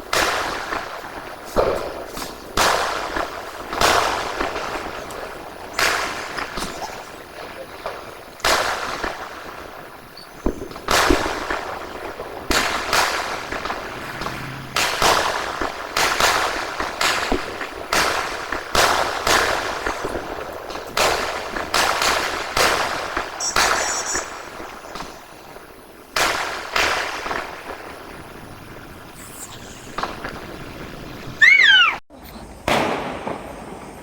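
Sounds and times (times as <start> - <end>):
crackling hiss of fireworks: 0.0 - 34.0
firework bangs: 0.0 - 34.0.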